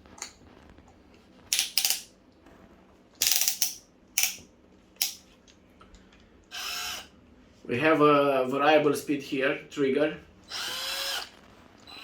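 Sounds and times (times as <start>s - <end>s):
drill chuck ratcheting: 1.5s - 2.1s, 3.2s - 4.4s, 10.5s - 11.3s.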